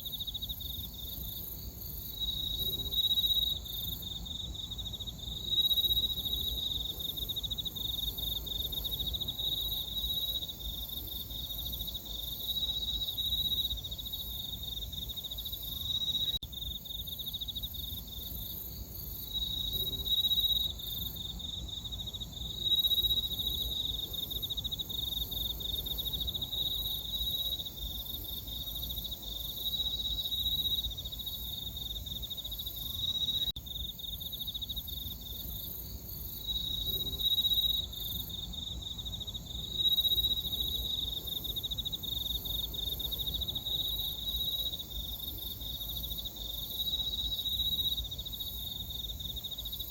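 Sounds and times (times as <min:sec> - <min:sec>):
crickets chirping: 0:00.0 - 0:49.9.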